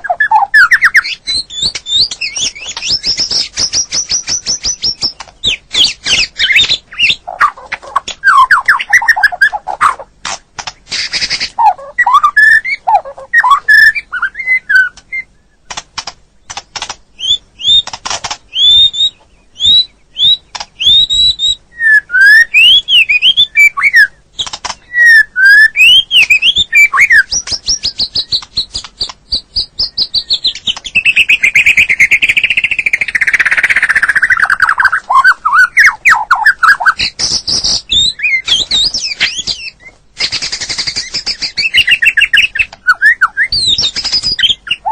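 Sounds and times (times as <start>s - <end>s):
bird singing whistled notes: 0.0s - 10.0s, 11.0s - 15.8s, 16.5s - 44.9s
bird clicks: 9.4s - 11.6s, 15.7s - 17.0s, 17.7s - 18.6s, 20.5s - 20.9s, 24.4s - 24.8s, 27.3s - 29.4s.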